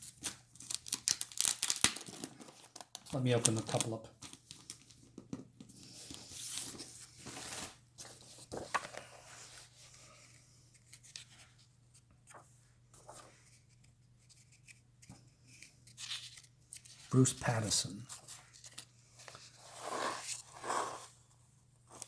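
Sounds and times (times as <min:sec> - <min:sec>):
packaging tearing and rustling: 0:00.2 - 0:04.6.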